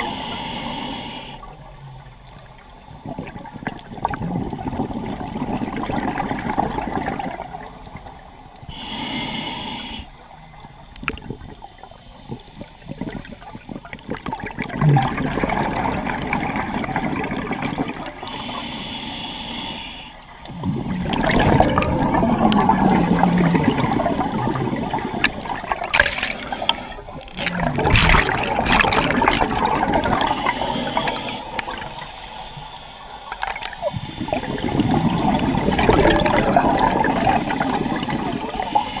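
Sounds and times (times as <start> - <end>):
regulator hissing inhalation: 0.0 - 1.4, 8.7 - 10.2, 18.2 - 21.0, 26.2 - 27.4, 30.1 - 36.0, 37.0 - 39.0
exhaled bubbles gurgling: 1.4 - 9.4, 10.3 - 19.0, 20.2 - 39.0.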